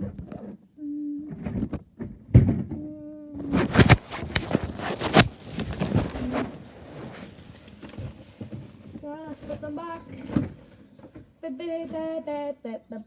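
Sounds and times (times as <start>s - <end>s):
objects clattering and clicking: 3.5s - 10.8s.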